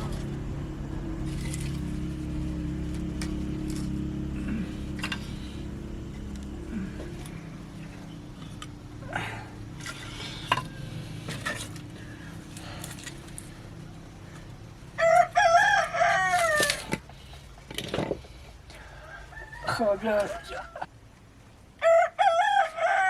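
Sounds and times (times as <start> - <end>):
rooster crowing: 14.9 - 17.0, 18.8 - 20.9, 21.8 - 23.0.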